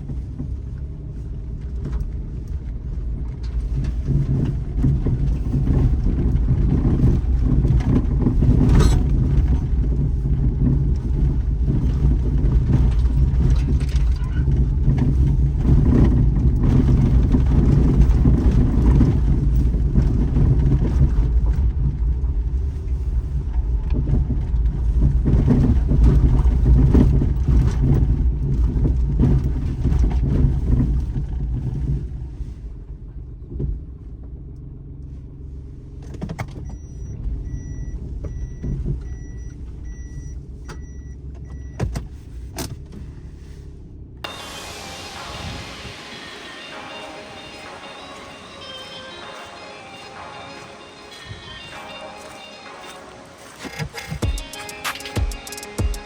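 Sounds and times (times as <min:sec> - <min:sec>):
knocks and crackles from tyres: 0:00.0 - 0:44.4
car engine running: 0:00.0 - 0:56.0
road rumble: 0:00.0 - 0:56.0.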